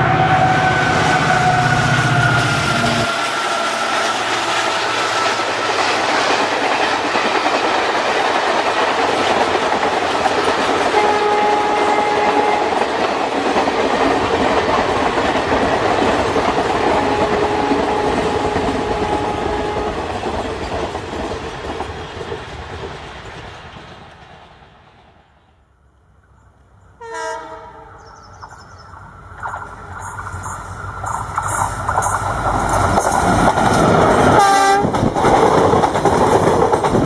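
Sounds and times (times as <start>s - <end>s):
diesel locomotive horn: 0.0s - 5.6s, 10.9s - 12.9s, 16.8s - 20.1s, 27.0s - 28.2s, 34.2s - 35.0s
train coaches clattering over rails: 0.0s - 24.4s, 28.1s - 37.0s.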